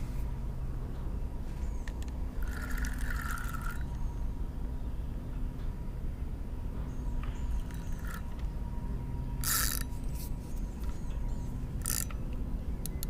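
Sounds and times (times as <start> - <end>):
fishing reel drag buzzing: 2.4 - 4.0, 7.6 - 8.3, 9.4 - 10.3, 11.8 - 12.1.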